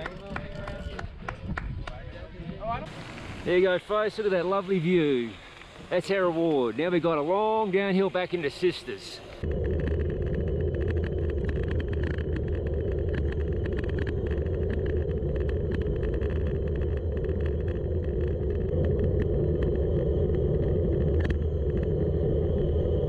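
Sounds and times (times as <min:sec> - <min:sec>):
road rumble: 0:00.0 - 0:23.0
wind: 0:00.0 - 0:23.0
fine ticking: 0:09.3 - 0:22.0.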